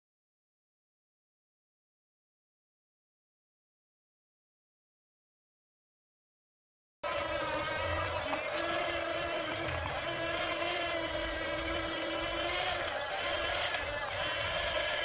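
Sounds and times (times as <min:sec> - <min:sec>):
small electric motor whining: 0:07.0 - 0:15.0.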